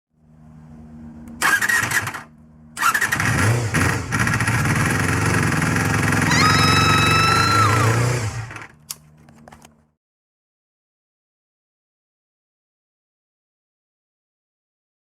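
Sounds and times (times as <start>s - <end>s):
motorcycle engine starting: 1.2s - 9.0s.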